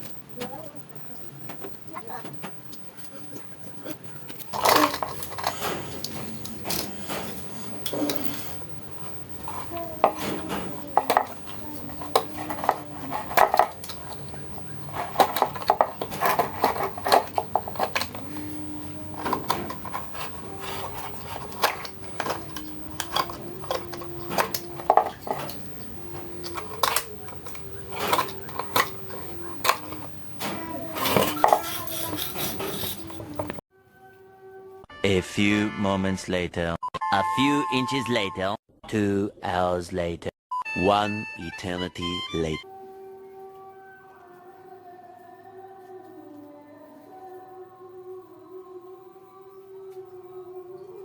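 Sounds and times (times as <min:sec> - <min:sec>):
hard objects clinking and knocking: 0:04.2 - 0:33.6.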